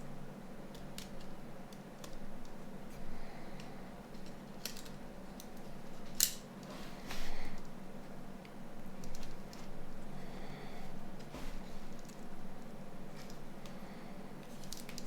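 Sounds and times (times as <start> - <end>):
tools and plastic parts clicking: 4.2 - 6.4.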